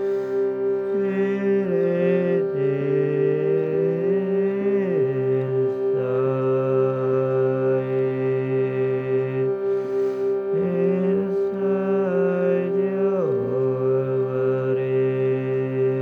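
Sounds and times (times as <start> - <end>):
person singing wordless notes: 0.0 - 16.0
shruti box drone: 0.0 - 16.0.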